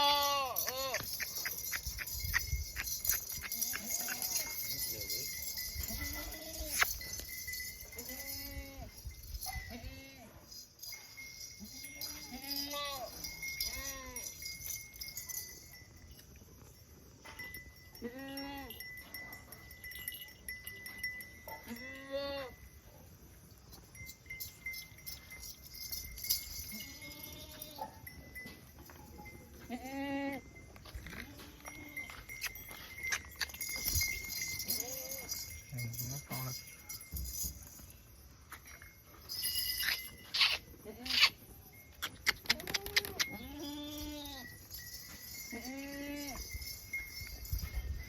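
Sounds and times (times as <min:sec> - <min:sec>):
goats bleating: 0:00.0 - 0:01.1.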